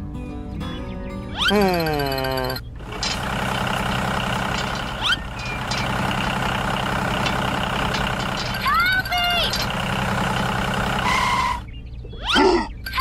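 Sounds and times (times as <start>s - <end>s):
heavy vehicle engine running: 2.6s - 11.7s.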